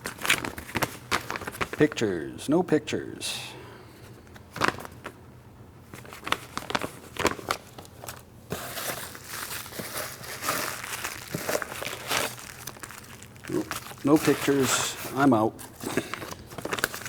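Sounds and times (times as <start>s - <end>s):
paper crinkling and rustling: 0.0s - 2.0s, 4.2s - 5.2s, 5.8s - 17.0s.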